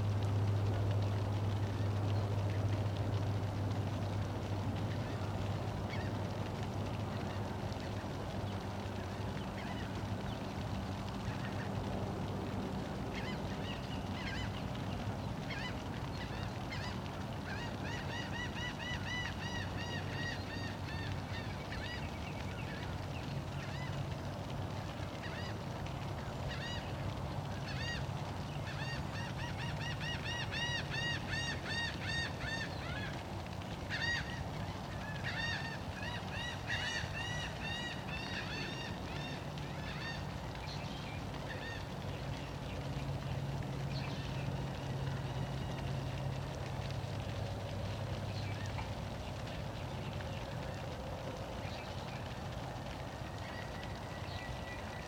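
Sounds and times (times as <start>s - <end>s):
birds calling: 27.6s - 43.0s.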